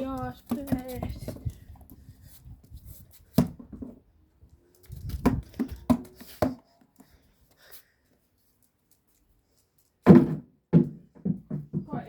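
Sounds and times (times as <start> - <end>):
basketball bouncing on hard ground: 0.0 - 1.6, 3.3 - 4.0, 5.0 - 6.6, 10.1 - 12.0.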